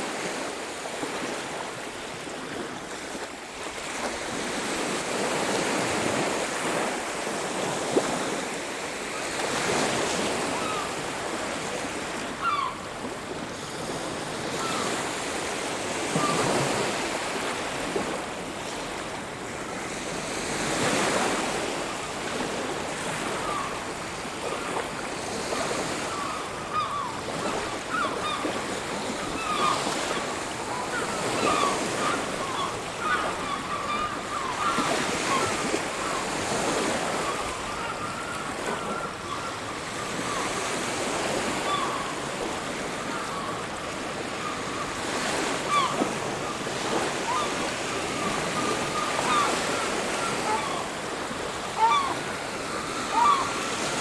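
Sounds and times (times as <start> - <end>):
sea waves washing onto beach: 0.0 - 1.7, 2.3 - 54.0
faint high-pitched calls: 12.3 - 12.8, 26.0 - 36.2, 41.5 - 42.3, 45.6 - 46.1, 46.9 - 51.0, 51.6 - 54.0.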